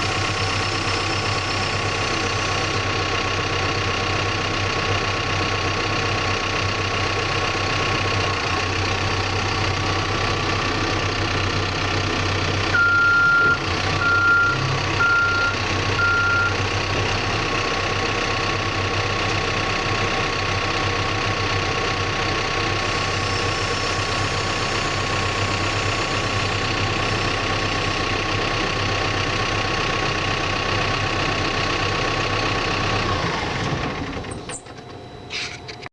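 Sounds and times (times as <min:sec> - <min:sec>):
backhoe engine running: 0:00.0 - 0:35.9
backup alarm beeping: 0:12.8 - 0:16.6.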